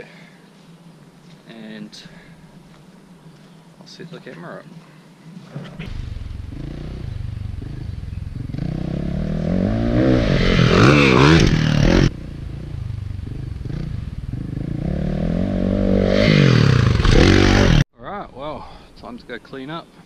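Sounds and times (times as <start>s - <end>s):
dirt bike engine revving: 5.7s - 17.8s.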